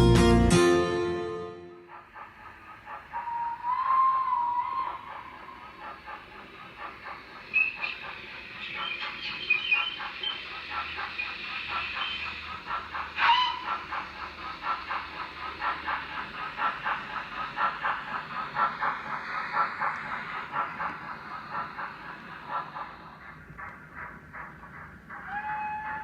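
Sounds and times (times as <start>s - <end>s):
steam locomotive chuffing: 1.5s - 26.0s
short train whistle: 3.2s - 5.0s, 25.3s - 26.0s.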